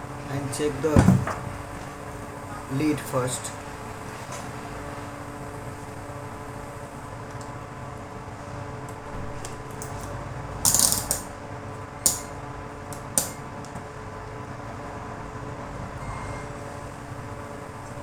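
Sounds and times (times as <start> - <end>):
tools clattering: 10.7 - 11.3, 12.1 - 12.4.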